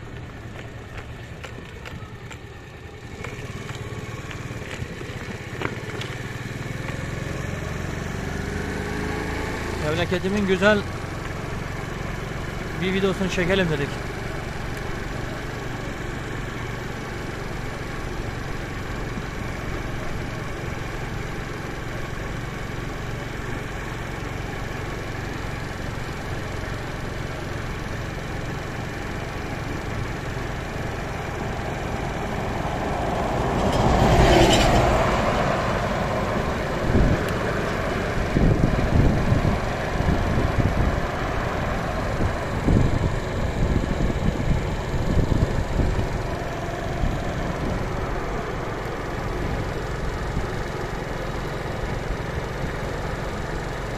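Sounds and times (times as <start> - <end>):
vehicle engine humming: 0.0 - 53.9
vehicle passing: 6.0 - 11.3, 31.0 - 43.8.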